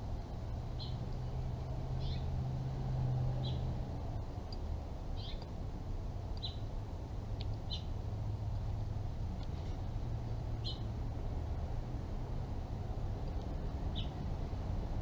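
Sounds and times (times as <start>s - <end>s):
high bird chirps: 0.8s - 1.0s, 2.0s - 2.3s, 5.2s - 5.5s, 6.4s - 6.7s, 7.6s - 7.9s.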